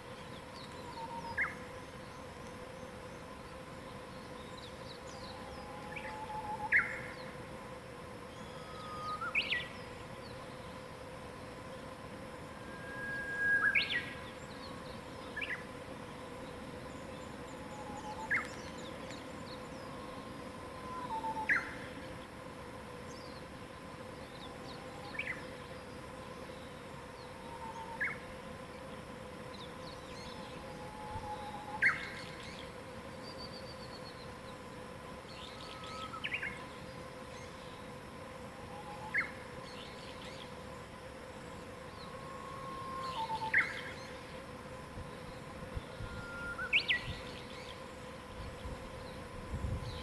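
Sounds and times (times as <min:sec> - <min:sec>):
lower whistled bird notes: 0:04.4 - 0:07.3, 0:08.4 - 0:09.9, 0:12.5 - 0:15.6, 0:17.5 - 0:21.9, 0:26.5 - 0:28.2, 0:29.6 - 0:34.2, 0:35.3 - 0:36.8, 0:38.7 - 0:40.5, 0:41.9 - 0:44.2, 0:45.3 - 0:47.8.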